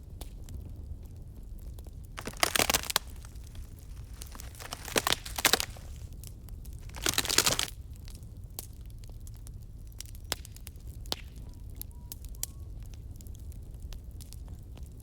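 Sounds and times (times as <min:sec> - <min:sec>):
campfire crackling: 0:02.2 - 0:06.1, 0:06.9 - 0:07.7.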